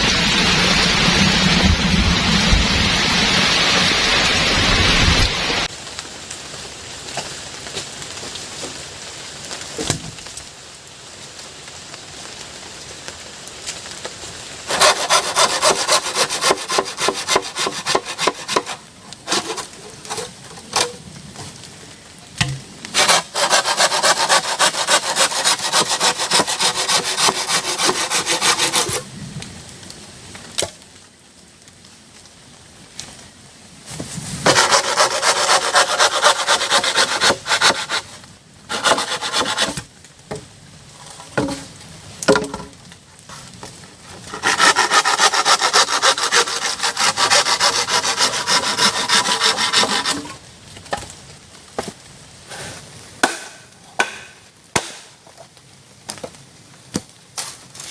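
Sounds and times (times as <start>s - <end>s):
rain hiss: 0.0s - 57.9s
hand saw cutting wood: 14.7s - 21.0s, 22.9s - 29.0s, 34.4s - 39.8s, 44.2s - 50.4s.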